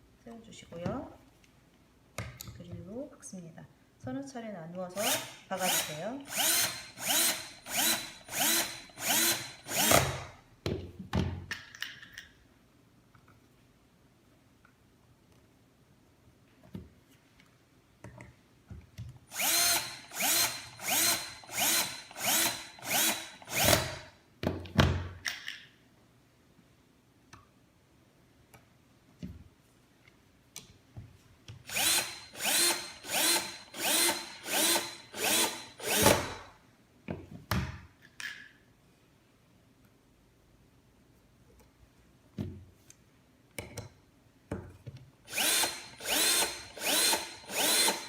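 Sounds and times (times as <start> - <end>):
electric drill whirring: 5.0 - 10.3, 19.3 - 24.1, 31.7 - 36.5, 45.3 - 48.0.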